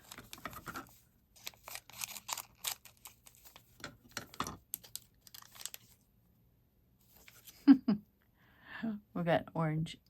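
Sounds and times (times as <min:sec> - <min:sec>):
plastic wrap crinkling: 0:00.0 - 0:06.0.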